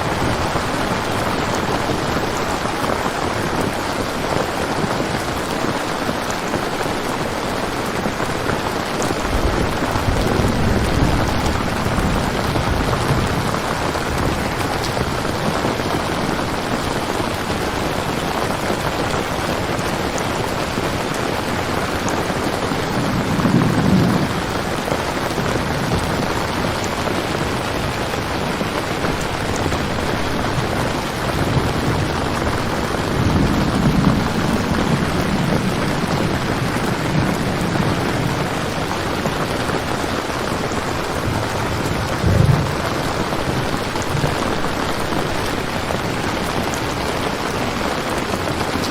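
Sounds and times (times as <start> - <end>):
heavy rain: 0.0 - 48.9
thunder rolls: 8.2 - 16.5, 22.1 - 48.9.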